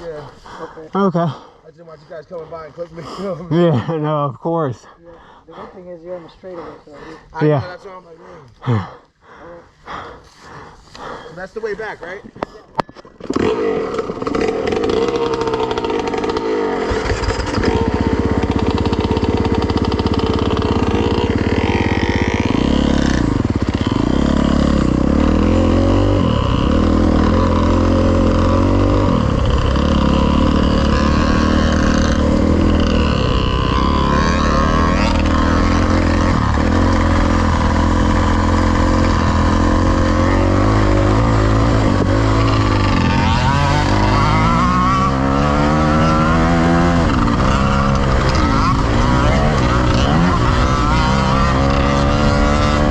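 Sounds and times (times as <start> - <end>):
dirt bike engine revving: 13.2 - 52.9.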